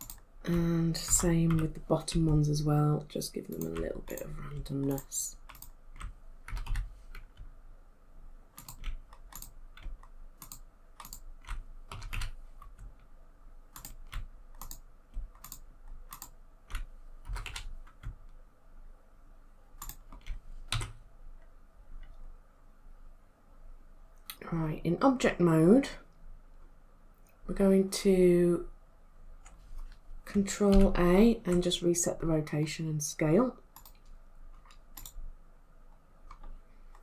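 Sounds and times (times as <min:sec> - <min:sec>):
keyboard keys clicking: 0:00.0 - 0:00.3, 0:00.9 - 0:02.6, 0:03.5 - 0:07.5, 0:08.5 - 0:13.1, 0:13.8 - 0:18.4, 0:19.8 - 0:21.0, 0:33.8 - 0:35.2.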